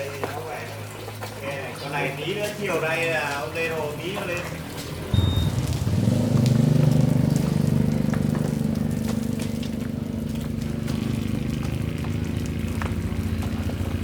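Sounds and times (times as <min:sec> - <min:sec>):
truck engine starting and idling: 0:04.5 - 0:14.0.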